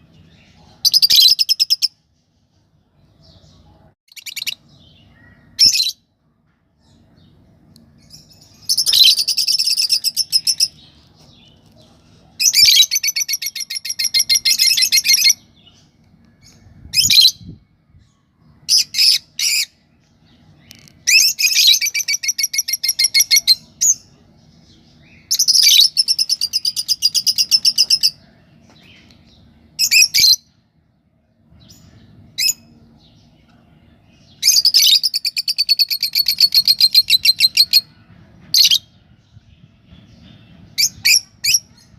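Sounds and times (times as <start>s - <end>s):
lovebirds chirping shrilly: 3.2s - 6.0s.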